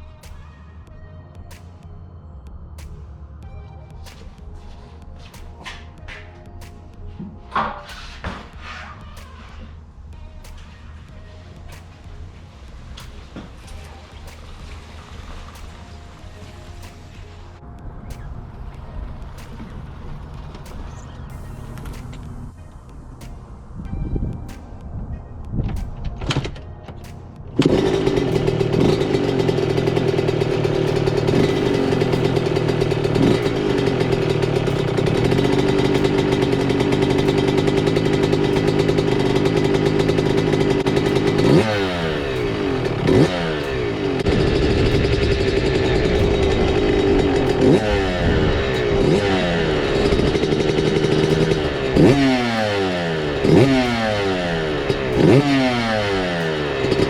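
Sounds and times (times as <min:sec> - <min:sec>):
engine revving: 0:26.3 - 0:57.0
engine knocks: 0:27.6 - 0:57.0
two-stroke engine running: 0:27.6 - 0:57.0.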